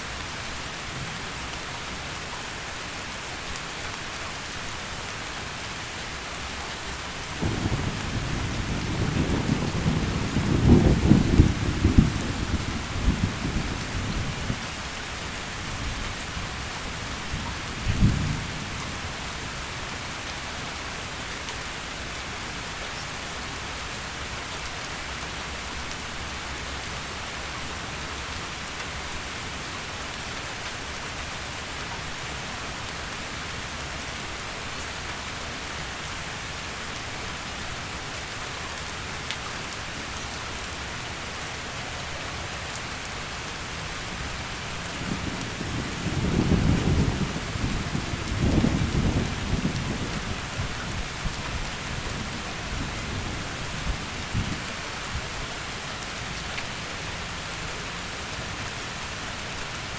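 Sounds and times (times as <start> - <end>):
heavy rain: 0.0 - 59.9
thunder rumble: 7.4 - 14.6, 45.0 - 50.7.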